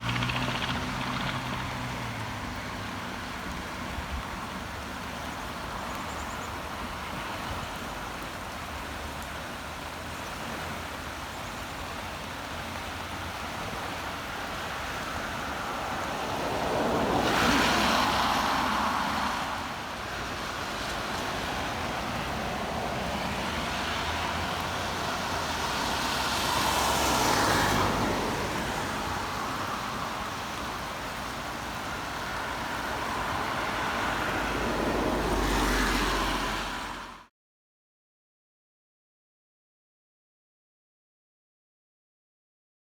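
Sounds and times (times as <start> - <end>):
heavy rain: 0.4 - 37.3
tyres hissing through water: 12.0 - 37.2.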